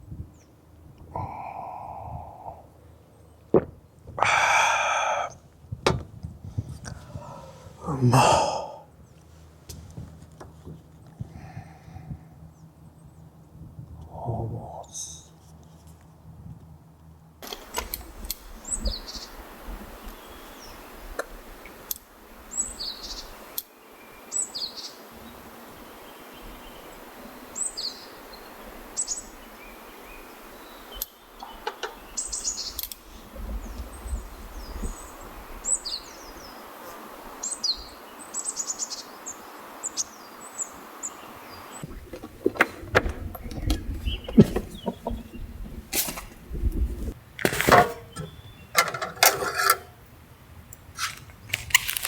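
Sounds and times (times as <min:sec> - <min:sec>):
small birds chirping: 0:17.6 - 0:46.9, 0:48.0 - 0:48.8.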